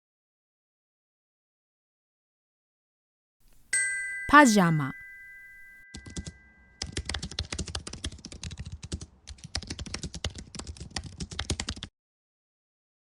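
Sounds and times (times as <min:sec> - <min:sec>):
rapid keyboard typing: 0:06.0 - 0:11.9.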